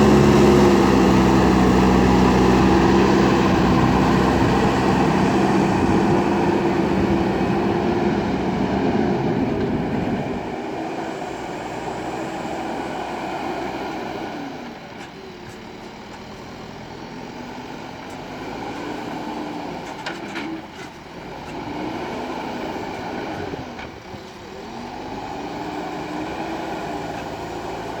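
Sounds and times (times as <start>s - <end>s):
rising and falling whine: 0.0s - 11.8s
diesel engine working: 0.0s - 28.0s.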